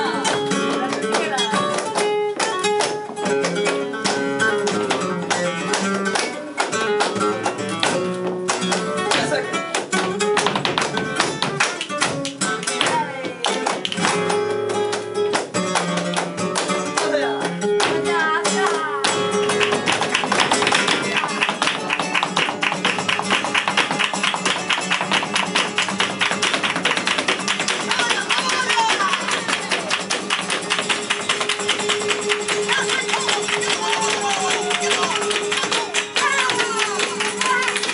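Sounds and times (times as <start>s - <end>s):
dancer's footwork tapping: 0.0s - 37.9s
guitar playing: 0.0s - 37.9s.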